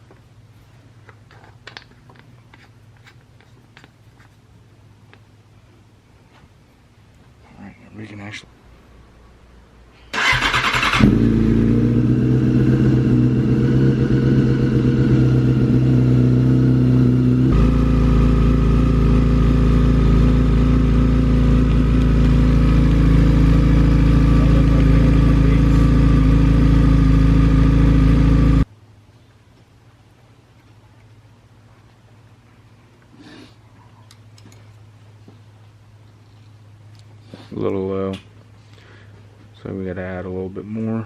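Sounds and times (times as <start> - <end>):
motorcycle engine starting and idling: 10.1 - 28.7.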